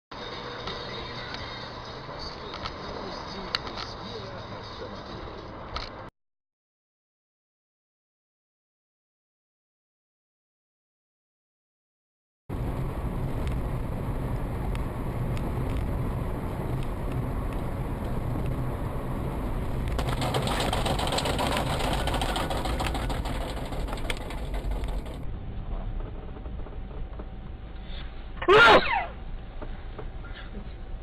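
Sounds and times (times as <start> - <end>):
car engine and road rumble: 0.1 - 6.1, 12.5 - 31.0
fine rattling ticks: 19.8 - 25.2.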